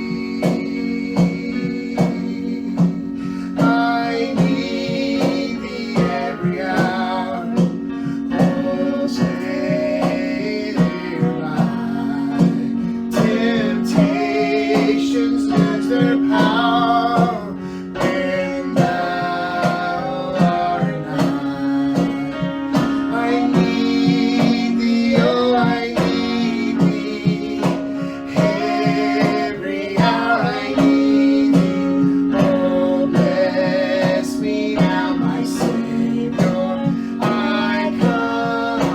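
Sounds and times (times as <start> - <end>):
acoustic guitar: 0.0 - 38.9
voices singing: 0.0 - 38.9.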